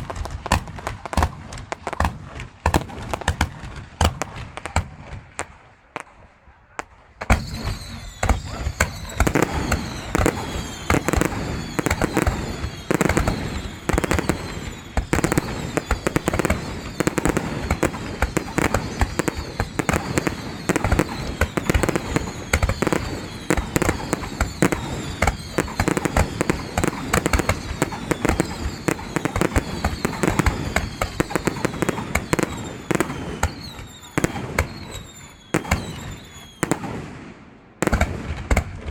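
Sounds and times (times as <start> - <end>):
fireworks banging and crackling: 0.0 - 38.9.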